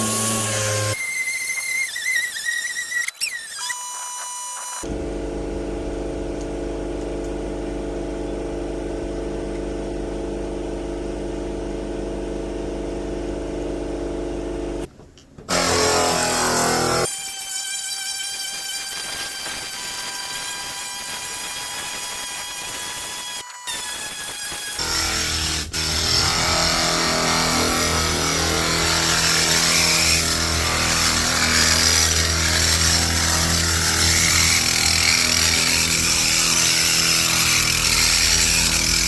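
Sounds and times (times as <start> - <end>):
sander grinding: 0.0 - 5.0, 15.5 - 39.0
sander high whine: 0.0 - 5.2
sander humming: 0.0 - 7.0, 15.5 - 17.2, 18.8 - 39.0.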